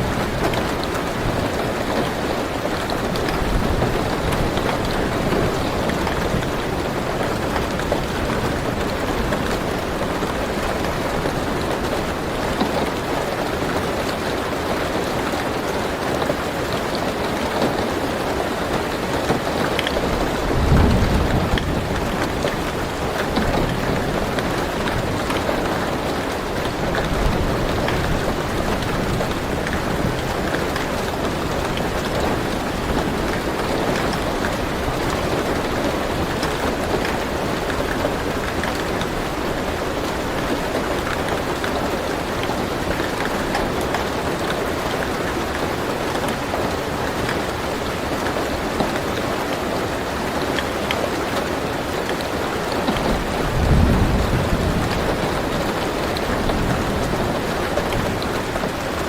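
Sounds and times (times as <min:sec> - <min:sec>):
rain on car roof from inside: 0:00.0 - 0:59.0
low rumble of thunder: 0:20.1 - 0:44.2, 0:53.0 - 0:58.8.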